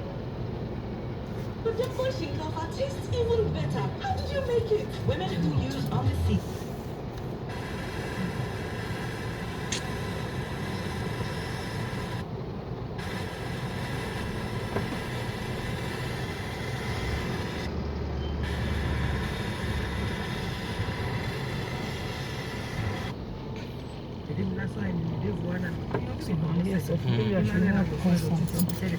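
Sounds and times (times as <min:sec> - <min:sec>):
vehicle engine and road noise: 0:00.0 - 0:28.9.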